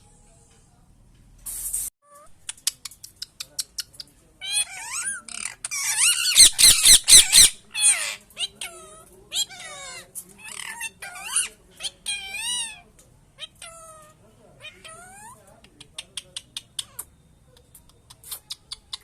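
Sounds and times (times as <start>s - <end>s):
parrot clicking: 2.4s - 4.0s
parrot squawking: 3.7s - 12.8s, 13.4s - 15.4s.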